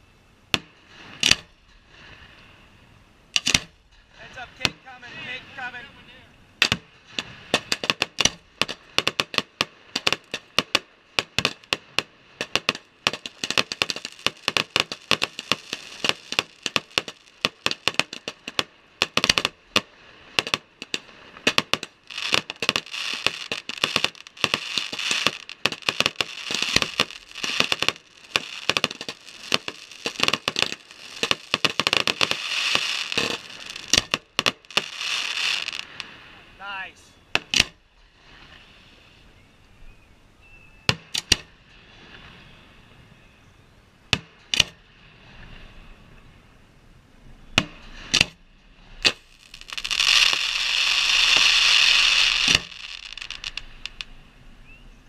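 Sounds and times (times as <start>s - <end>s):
fireworks banging and crackling: 0.0s - 2.4s, 3.3s - 6.0s, 6.6s - 37.8s, 44.1s - 44.8s, 47.5s - 48.4s, 49.0s - 54.1s.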